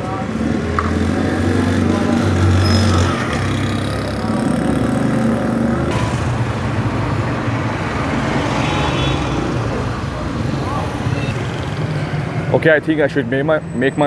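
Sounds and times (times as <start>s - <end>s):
road noise hum: 0.0s - 14.0s
vehicle engine running: 3.3s - 12.6s.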